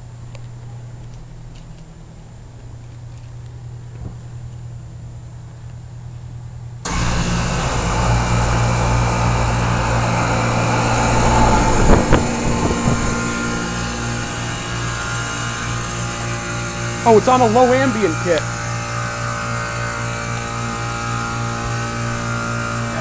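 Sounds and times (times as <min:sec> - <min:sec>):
compressor hum: 0:00.0 - 0:23.0
fan and rushing air: 0:06.7 - 0:23.0.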